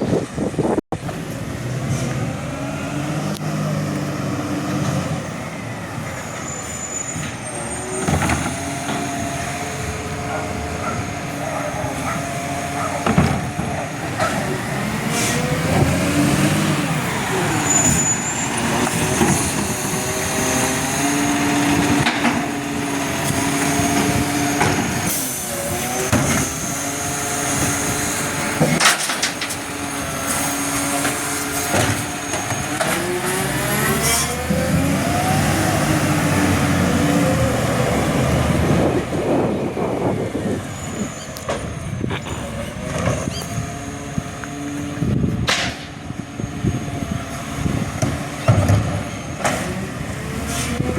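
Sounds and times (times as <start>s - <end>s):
garbage truck engine revving: 1.0s - 50.9s
clanks and knocks: 12.9s - 14.4s, 22.0s - 22.5s, 28.6s - 29.6s, 45.4s - 46.0s, 48.0s - 49.7s.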